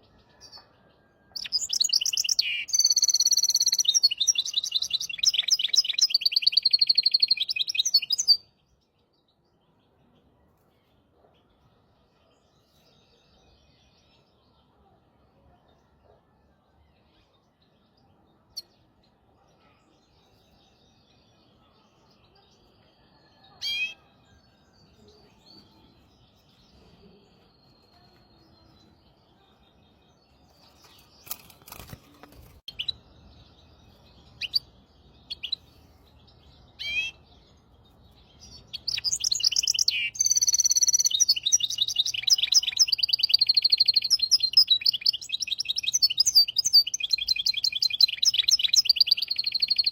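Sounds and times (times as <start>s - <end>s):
finch chirps: 1.4s - 8.4s, 33.7s - 49.9s.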